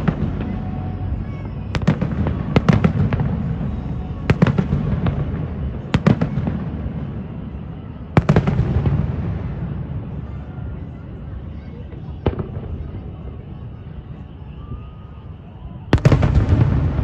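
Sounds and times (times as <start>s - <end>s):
fireworks bangs: 0.0s - 17.0s
rumbling echo: 15.9s - 17.0s.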